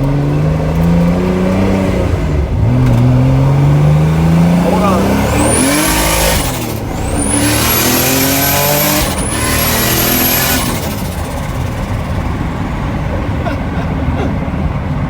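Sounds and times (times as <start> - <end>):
car engine revving hard: 0.0 - 12.6
high turbo whine: 1.8 - 15.0.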